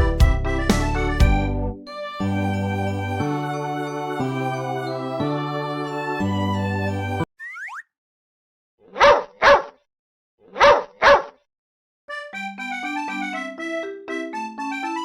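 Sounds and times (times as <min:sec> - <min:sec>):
electronic keyboard music: 0:00.0 - 0:07.3, 0:12.1 - 0:15.0
dog barking: 0:08.8 - 0:09.8, 0:10.4 - 0:11.4.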